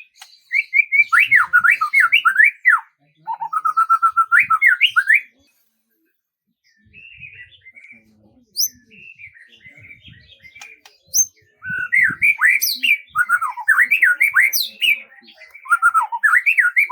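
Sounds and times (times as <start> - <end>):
songbird singing: 0.0 - 5.6, 6.6 - 16.9.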